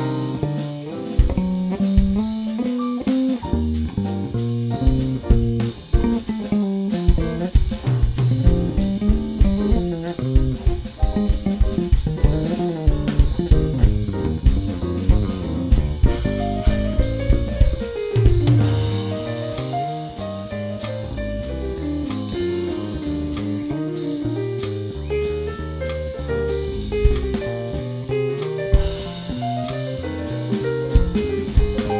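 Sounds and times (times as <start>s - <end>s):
instrumental jazz: 0.0s - 31.9s.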